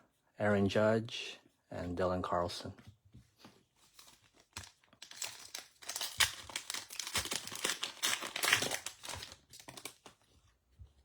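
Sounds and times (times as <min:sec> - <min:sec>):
foil wrapper tearing and crinkling: 0:03.9 - 0:10.2.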